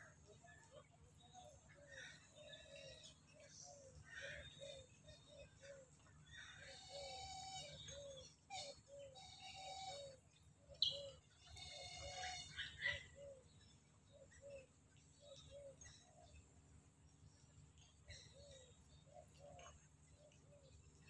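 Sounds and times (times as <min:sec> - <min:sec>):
longer bird calls: 0:00.0 - 0:16.6, 0:17.2 - 0:21.0.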